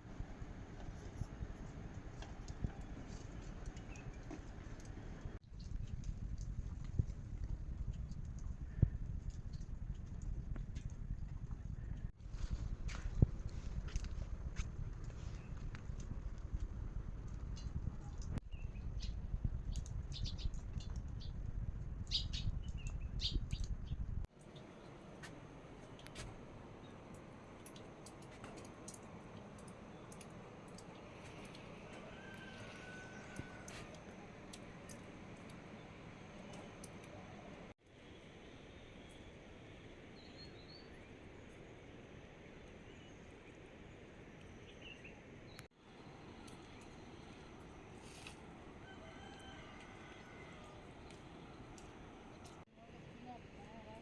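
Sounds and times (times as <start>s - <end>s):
low steady rumble: 0.0s - 24.9s
small birds chirping: 17.6s - 24.9s
faint rain falling: 24.3s - 37.8s, 45.8s - 54.0s.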